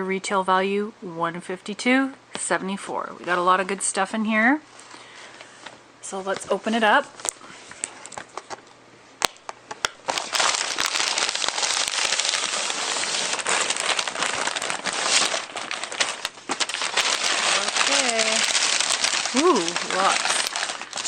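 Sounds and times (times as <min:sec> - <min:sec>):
wrapping crinkling and tearing: 0:07.0 - 0:09.4, 0:10.0 - 0:21.0.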